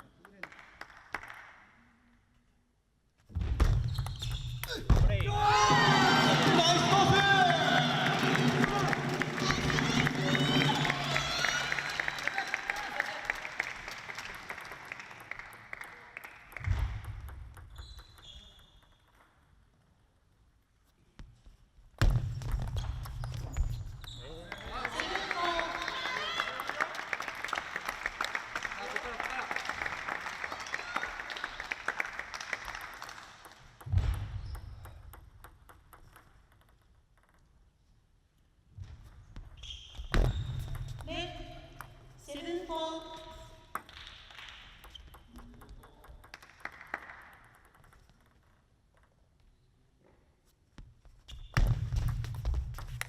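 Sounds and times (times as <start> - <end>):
applause in a hall: 0.0 - 2.0, 5.8 - 17.2, 24.2 - 33.8, 43.4 - 44.8, 46.2 - 47.7.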